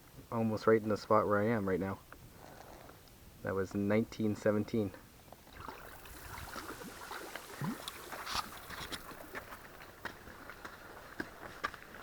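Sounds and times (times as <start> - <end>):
paddle splashing in water: 5.5 - 11.5.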